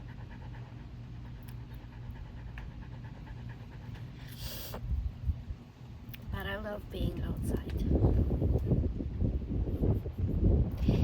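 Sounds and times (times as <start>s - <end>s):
dog panting: 0.0s - 4.6s
short hissing rustle: 4.2s - 4.8s.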